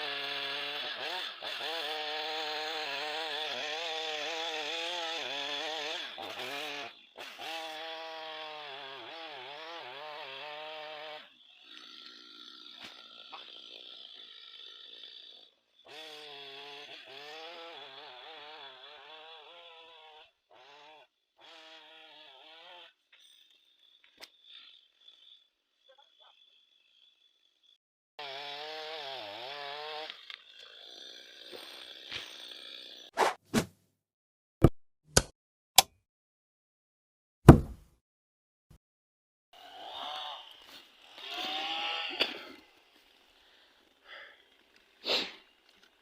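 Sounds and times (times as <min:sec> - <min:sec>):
chainsaw cutting tree: 0:00.0 - 0:33.1, 0:39.6 - 0:46.0.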